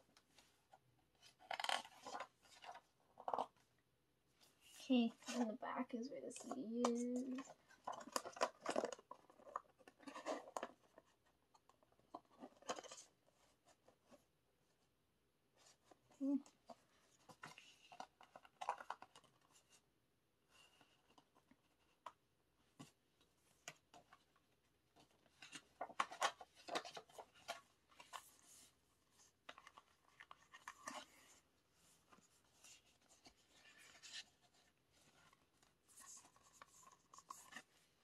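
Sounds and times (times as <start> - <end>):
packaging rustling and crackling: 7.3 - 11.0.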